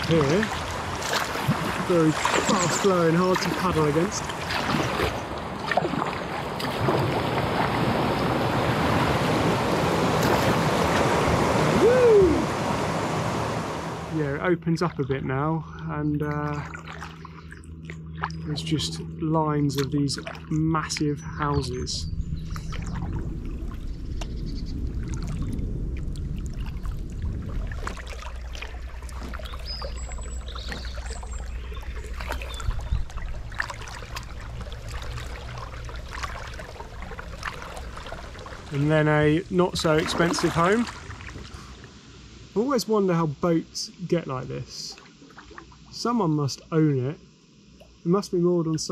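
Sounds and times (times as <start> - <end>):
stream water rushing: 0.0 - 14.3, 26.5 - 43.6
low rumble: 11.8 - 42.6.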